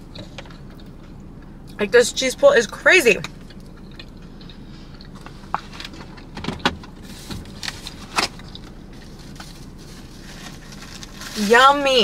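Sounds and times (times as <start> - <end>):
mouth chewing clicks and smacks: 3.2 - 6.4.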